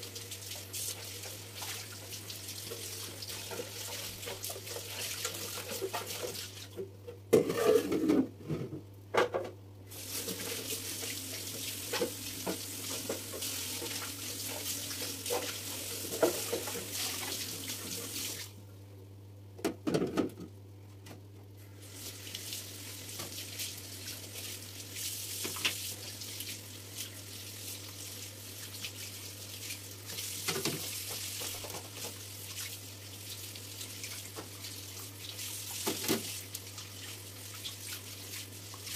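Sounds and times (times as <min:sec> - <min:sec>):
items knocking and clattering: 0:07.1 - 0:09.6, 0:19.6 - 0:20.5
tap running into sink: 0:11.9 - 0:14.7.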